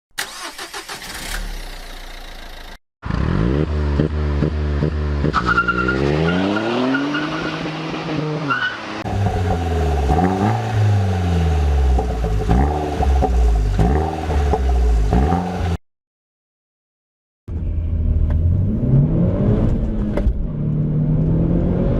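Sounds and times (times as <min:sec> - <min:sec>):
car engine revving: 0:03.0 - 0:15.8.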